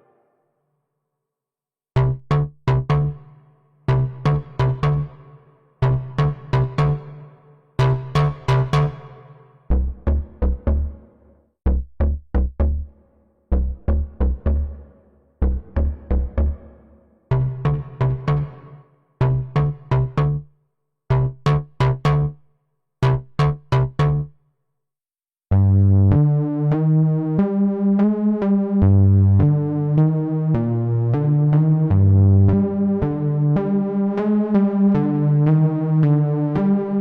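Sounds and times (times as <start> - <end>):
synthesizer bass line: 2.0 - 11.0, 11.7 - 12.9, 13.5 - 16.7, 17.3 - 20.5, 21.1 - 22.4, 23.0 - 24.3, 25.5 - 37.0
synthesizer staccato notes: 2.0 - 11.0, 15.4 - 16.7, 17.3 - 20.5, 21.1 - 22.4, 23.0 - 24.3.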